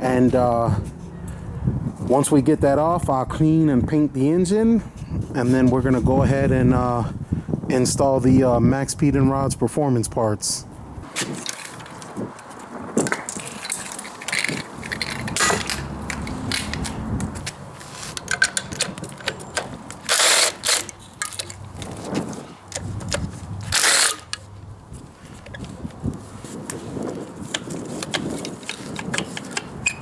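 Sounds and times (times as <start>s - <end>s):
metal parts clinking: 13.0s - 22.0s, 22.7s - 24.5s
ratchet clicking: 13.6s - 21.6s, 23.1s - 24.5s.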